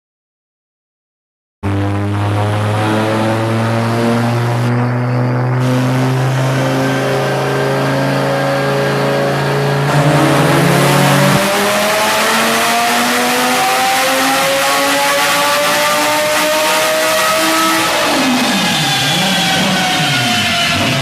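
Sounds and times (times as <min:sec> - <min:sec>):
deep low hum: 0:01.6 - 0:08.6
car engine under load: 0:02.4 - 0:21.0.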